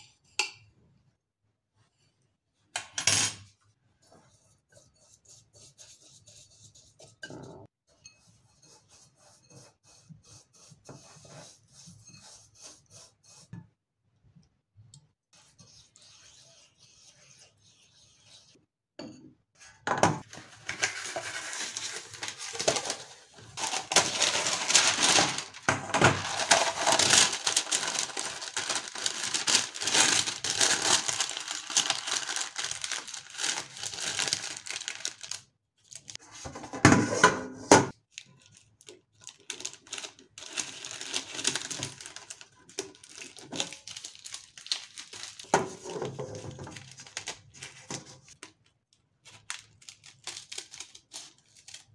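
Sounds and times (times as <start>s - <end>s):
baking paper crinkling: 20.2s - 36.2s, 38.0s - 51.9s.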